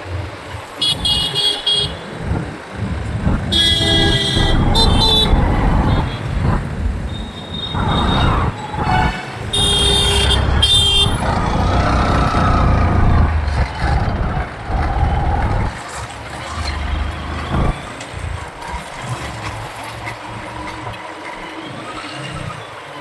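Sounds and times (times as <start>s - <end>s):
wind noise: 0.0s - 21.0s
road traffic: 0.0s - 23.0s
vehicle horn honking: 3.5s - 6.2s, 7.4s - 11.2s.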